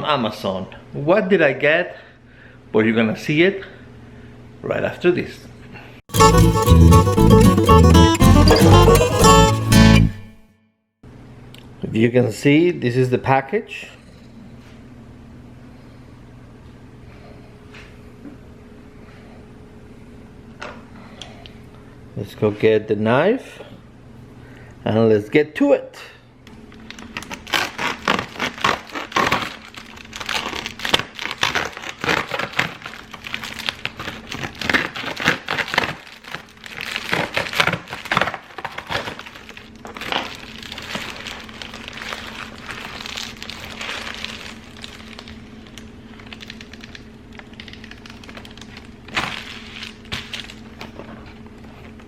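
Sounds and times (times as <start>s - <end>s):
packaging being torn open: 26.8s - 51.2s.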